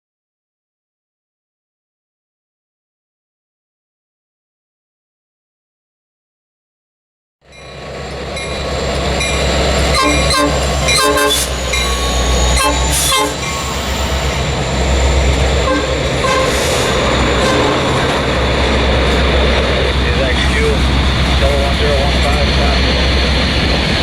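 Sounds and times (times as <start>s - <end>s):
rail noise: 7.5s - 24.0s
train engine rumble: 7.5s - 24.0s
train horn blasts: 9.9s - 13.9s, 15.6s - 18.2s.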